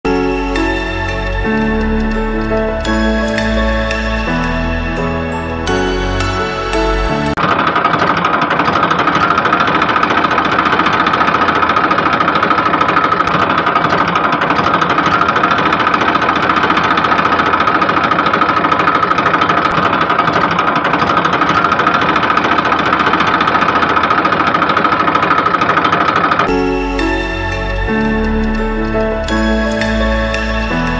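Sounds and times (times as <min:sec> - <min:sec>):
small motor chugging and whining: 0:07.3 - 0:30.9.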